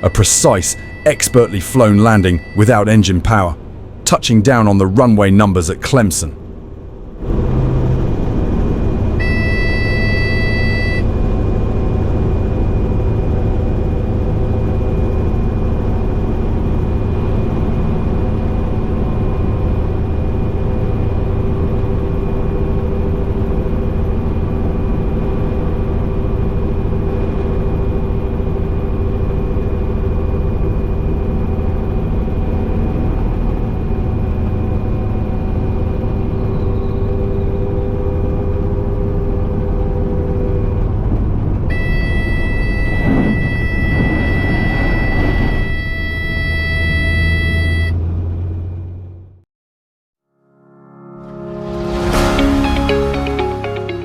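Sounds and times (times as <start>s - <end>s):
electronic tone: 0.0s - 2.6s, 9.2s - 11.1s, 41.7s - 47.9s
helicopter engine and rotor drone: 0.0s - 44.0s.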